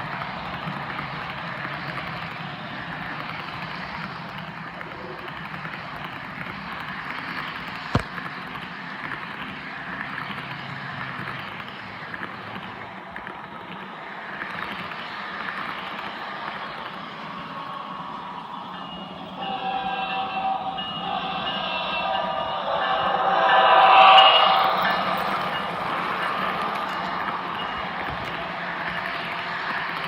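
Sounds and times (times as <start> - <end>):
model locomotive engine rumble: 0.0 - 30.0.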